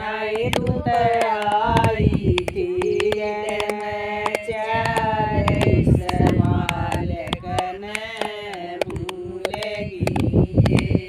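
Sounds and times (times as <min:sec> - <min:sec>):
voices singing devotional song: 0:00.0 - 0:11.0
sharp percussive clicks: 0:00.3 - 0:11.0.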